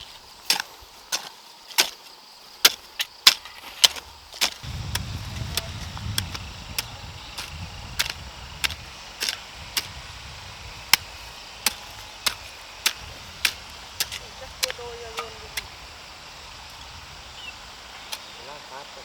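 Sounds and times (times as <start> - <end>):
hand tool chopping strikes: 0.5 - 2.0, 2.6 - 9.9, 10.9 - 15.7
low rumble: 4.6 - 18.1.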